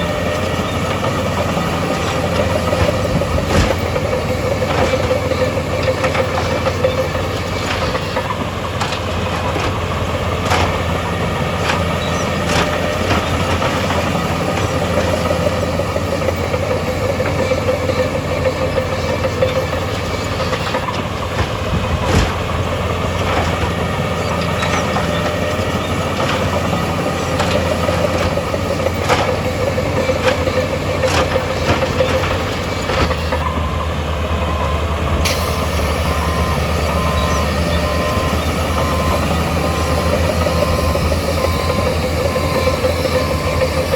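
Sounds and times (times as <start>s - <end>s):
diesel engine drone: 0.0s - 43.9s
metallic clanks and knocks: 0.3s - 33.6s.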